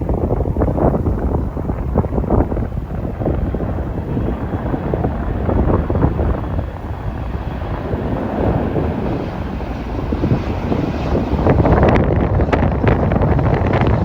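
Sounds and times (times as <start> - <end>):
jet airliner rumble: 0.0 - 14.0
wind buffeting microphone: 0.0 - 14.0.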